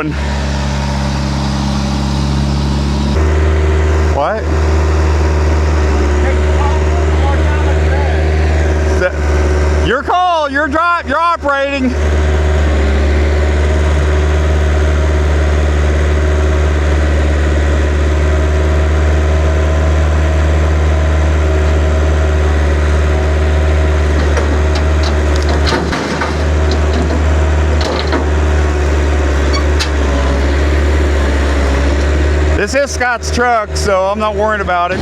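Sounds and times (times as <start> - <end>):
vehicle engine droning: 0.0 - 35.0
light clicks and rattles: 24.2 - 30.3.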